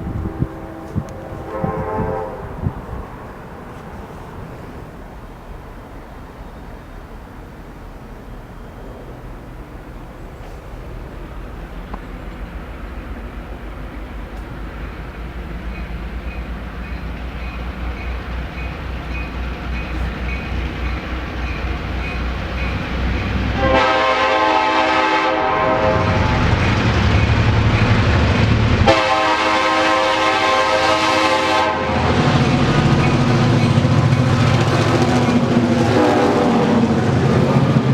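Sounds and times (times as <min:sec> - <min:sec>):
locomotive horn blasts: 0:00.0 - 0:03.2, 0:22.0 - 0:26.7, 0:28.7 - 0:32.5, 0:35.7 - 0:37.8
diesel locomotive engine drone: 0:00.0 - 0:37.9.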